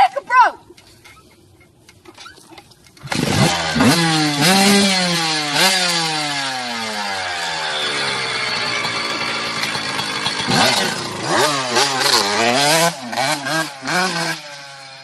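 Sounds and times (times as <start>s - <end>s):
dirt bike engine revving: 3.0s - 15.0s.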